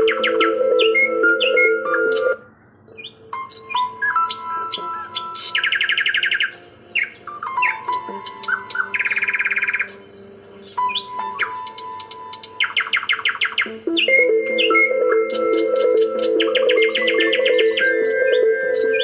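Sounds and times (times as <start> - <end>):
birdsong chirps and trills: 0.0 - 19.0
calm music with held tones: 0.0 - 19.0.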